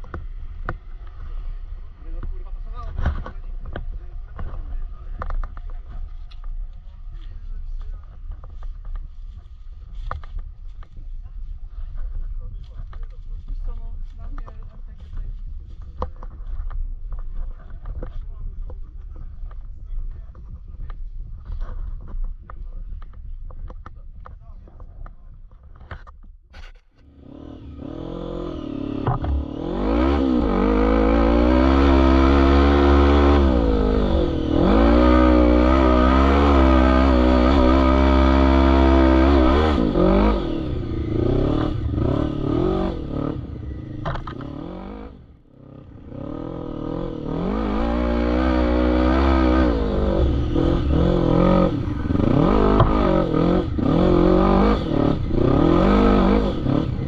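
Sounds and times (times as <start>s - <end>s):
atv engine revving: 0.0s - 7.3s, 27.0s - 57.0s.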